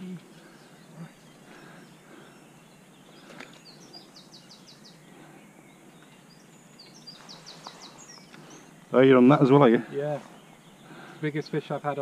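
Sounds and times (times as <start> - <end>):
songbird singing: 0.0 - 12.0
steady background hiss: 0.0 - 12.0.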